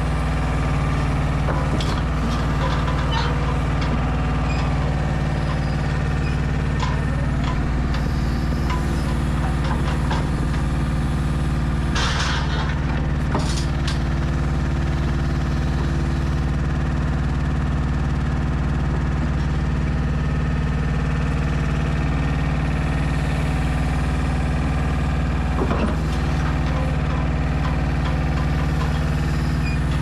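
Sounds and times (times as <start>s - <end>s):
diesel truck engine idling: 0.0s - 30.0s
metallic knocks and clanks: 1.5s - 4.8s, 11.9s - 14.0s.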